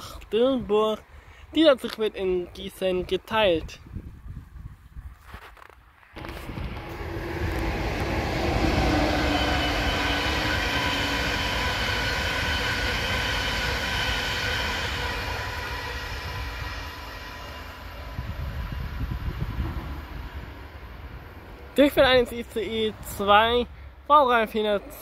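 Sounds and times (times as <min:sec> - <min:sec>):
high-speed train passing: 0:05.9 - 0:25.0
train whine: 0:06.1 - 0:24.0.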